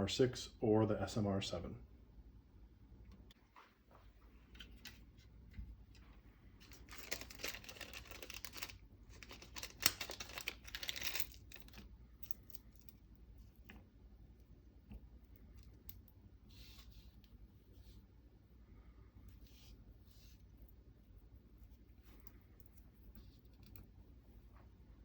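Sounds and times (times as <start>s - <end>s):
plastic bag crinkling: 6.6s - 13.0s.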